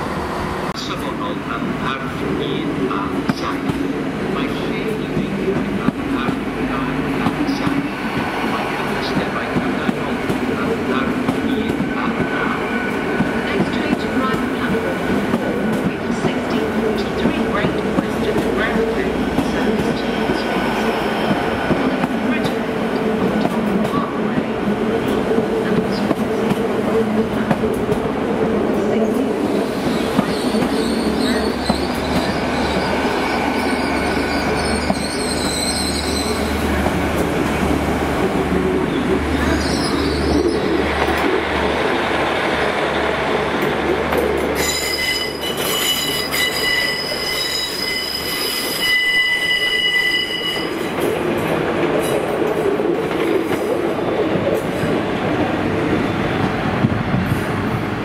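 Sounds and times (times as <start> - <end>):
train wheels rumbling on rail: 0.0 - 58.0
wheel squeal: 30.3 - 36.5, 44.6 - 50.8.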